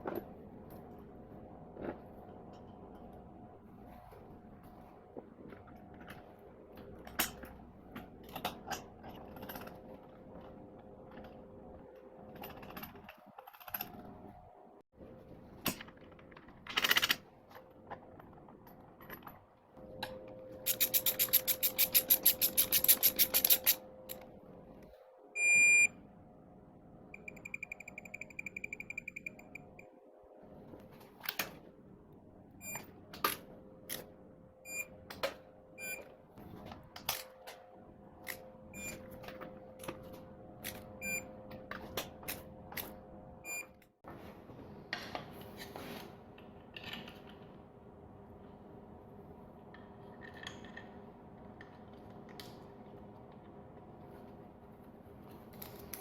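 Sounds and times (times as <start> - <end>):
ratchet clicking: 20.7 - 23.8
short electronic beep: 25.4 - 25.9.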